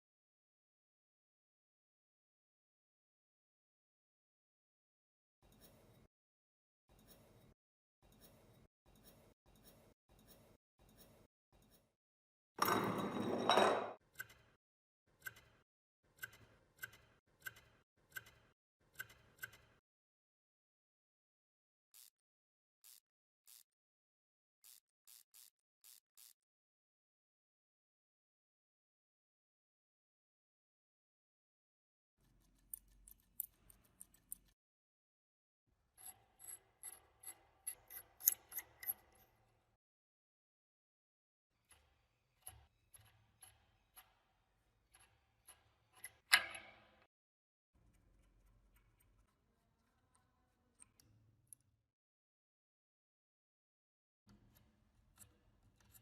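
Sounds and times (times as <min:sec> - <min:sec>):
scraping strokes on metal: 0:05.4 - 0:06.1, 0:06.9 - 0:11.9, 0:35.9 - 0:39.6.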